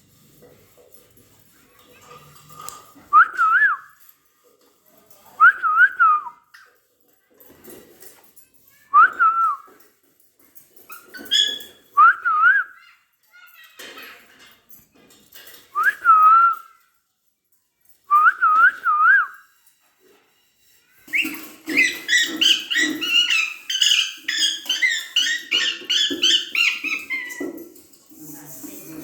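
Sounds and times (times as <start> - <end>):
parakeet whistling: 21.1 - 27.4
parakeet rapid chattering calls: 21.7 - 27.4.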